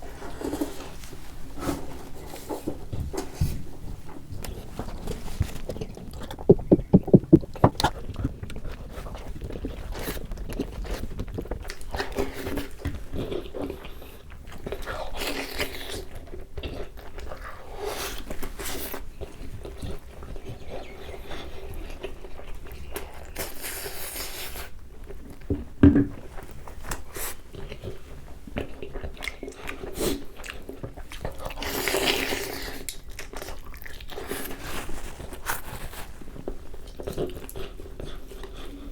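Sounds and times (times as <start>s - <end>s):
person chewing with crunches: 0.4s - 38.9s
loud knocks: 6.4s - 7.9s.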